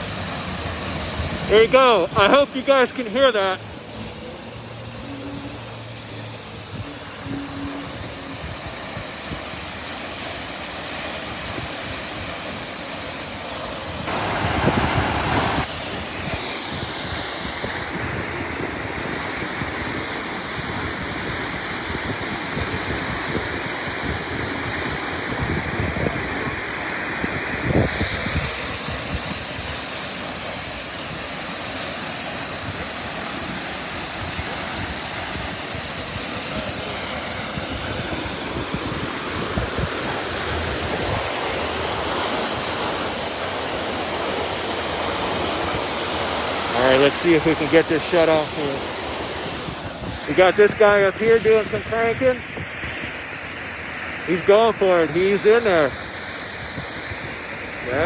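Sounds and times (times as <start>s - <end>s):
water jetting from fire hydrant: 0.0s - 58.0s.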